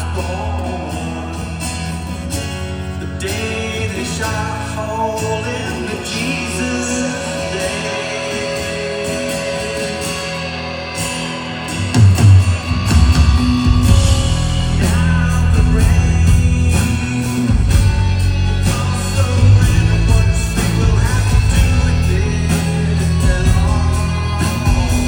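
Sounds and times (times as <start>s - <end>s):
person singing: 0.0s - 2.4s, 3.0s - 25.0s
electric guitar: 0.0s - 25.0s
live rock band: 0.0s - 25.0s
heavy bass and drums: 6.2s - 25.0s.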